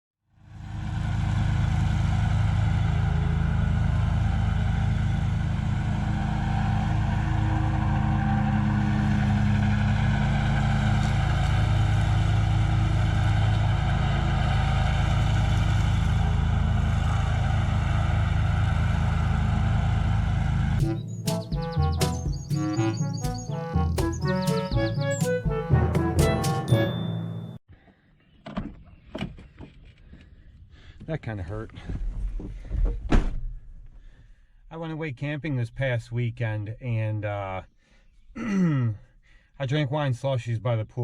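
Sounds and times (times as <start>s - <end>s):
lawn mower engine running: 0.6s - 27.6s.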